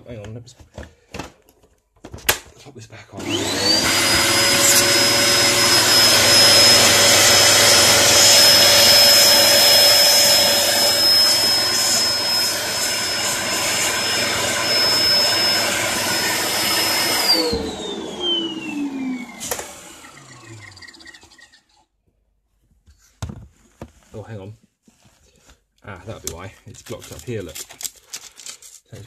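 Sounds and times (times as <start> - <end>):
vacuum cleaner switching off knock: 3.2 - 20.8
vacuum cleaner motor whining: 3.2 - 21.5.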